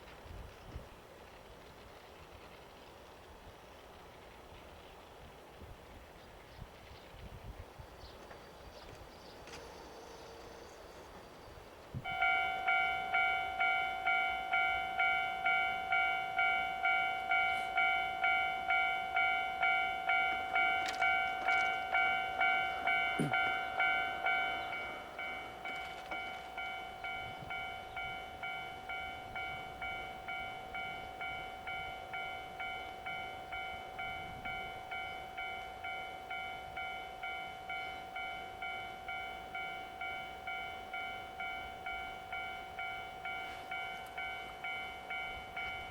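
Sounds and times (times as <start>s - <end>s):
level crossing bell ringing: 12.1s - 45.9s.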